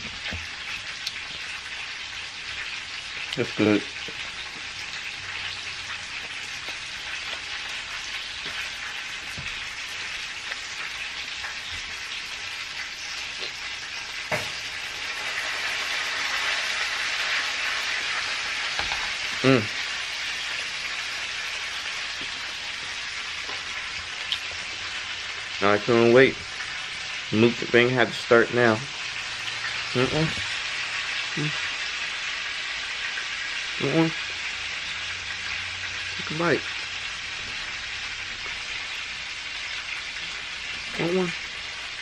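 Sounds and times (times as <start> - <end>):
chicken sizzling in hot oil: 0.0 - 42.0.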